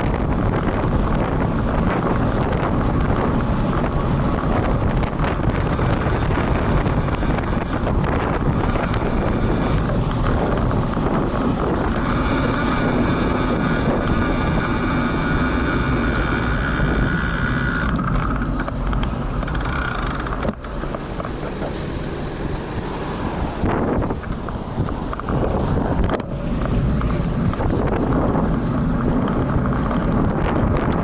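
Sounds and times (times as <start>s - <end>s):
road traffic: 0.0s - 31.0s
wind buffeting microphone: 0.0s - 31.0s
steady whine: 4.9s - 21.9s
thin high squeal: 17.7s - 20.5s.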